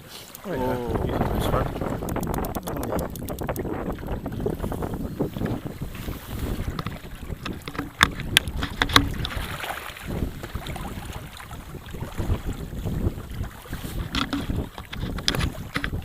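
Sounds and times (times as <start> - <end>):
water against hull: 0.0 - 16.0
wind buffeting microphone: 0.0 - 16.0
sharp knocks: 6.8 - 9.3.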